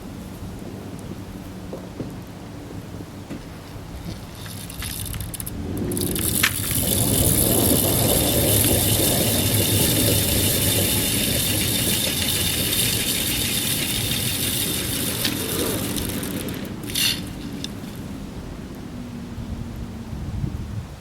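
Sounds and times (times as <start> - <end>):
truck engine under load: 1.9 - 18.7
mechanical rattle: 4.0 - 18.1.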